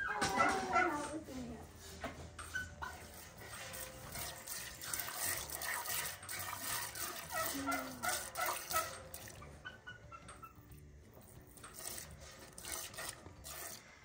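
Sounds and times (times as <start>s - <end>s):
milk squirting into metal pail: 2.8s - 14.0s.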